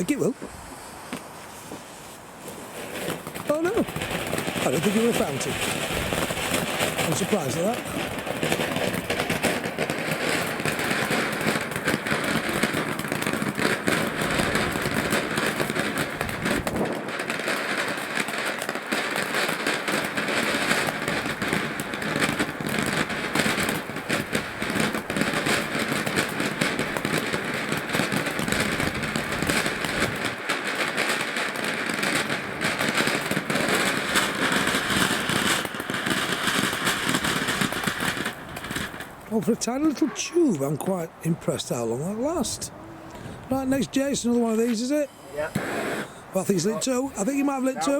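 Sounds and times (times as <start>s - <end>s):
firework fountain hissing and crackling: 0.0s - 47.9s.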